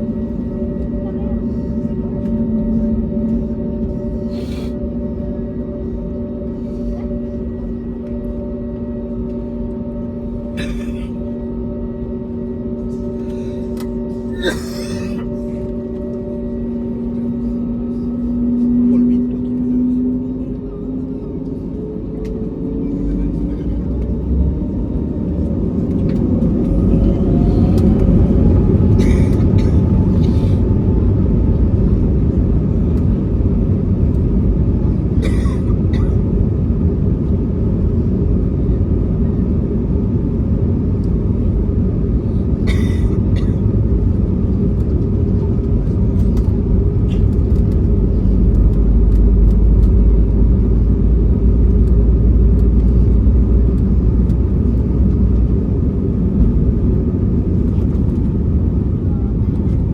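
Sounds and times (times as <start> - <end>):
jet engine whine rising: 0.0 - 59.9
jet engines rumbling: 0.0 - 59.9.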